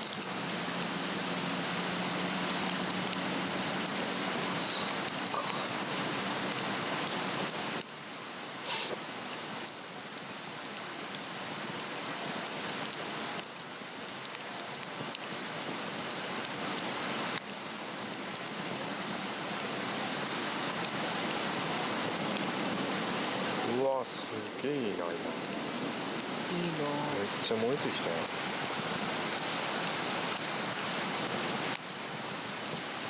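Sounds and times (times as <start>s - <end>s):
fire rushing hiss: 0.0s - 9.8s, 18.1s - 32.9s
fire crackles: 0.0s - 33.0s.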